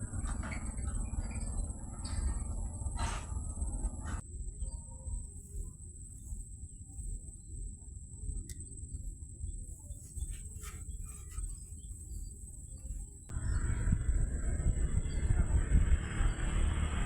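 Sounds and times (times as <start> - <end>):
low rumble: 0.0 - 4.4, 13.3 - 17.0
crickets droning: 0.0 - 17.0.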